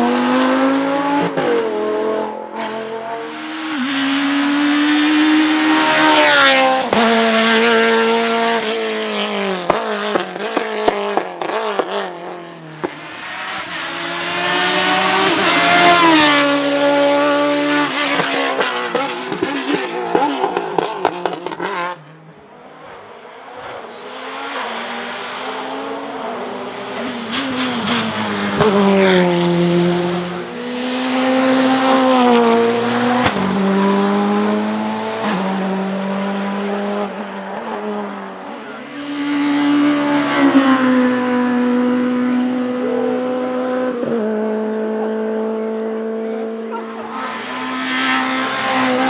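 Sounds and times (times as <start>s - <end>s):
distant engine revving: 0.0s - 22.5s, 24.0s - 49.0s
race car engine at full throttle: 0.0s - 49.0s.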